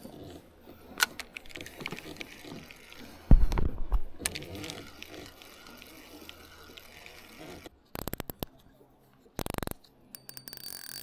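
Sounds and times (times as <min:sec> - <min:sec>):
fishing reel ratchet clicking: 0:09.4 - 0:11.0.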